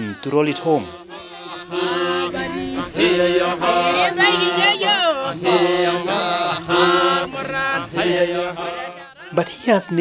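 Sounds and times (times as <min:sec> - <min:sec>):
chanting voices: 0:00.0 - 0:10.0.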